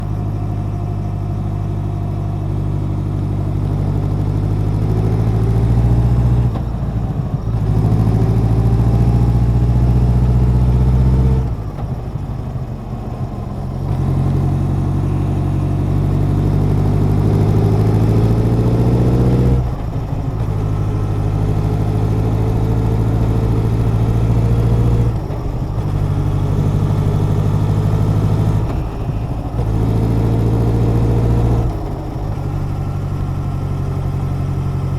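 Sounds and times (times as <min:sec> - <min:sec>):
motorcycle exhaust accelerating: 0:00.0 - 0:34.9.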